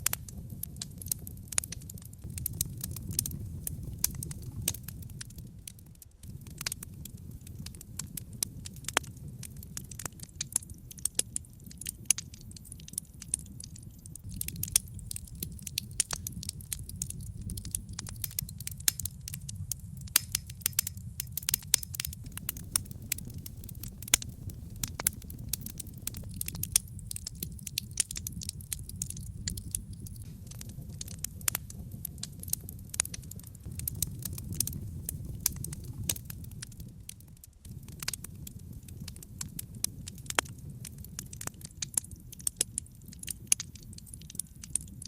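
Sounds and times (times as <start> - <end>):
fire crackling and popping: 0.0 - 45.0
low rumble of flame: 0.0 - 45.0.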